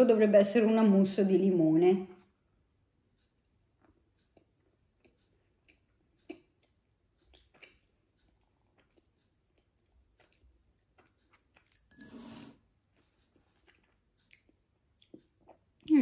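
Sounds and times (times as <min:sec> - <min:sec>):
closed-mouth chewing: 0:03.2 - 0:16.0
wet mouth clicks: 0:03.8 - 0:11.9, 0:13.0 - 0:16.0.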